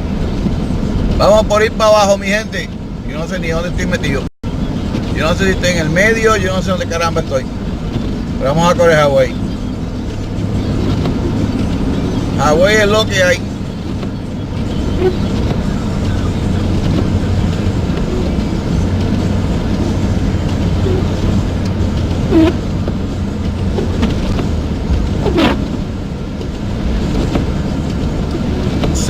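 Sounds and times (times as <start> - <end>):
engine and tyre rumble: 0.0 - 29.0.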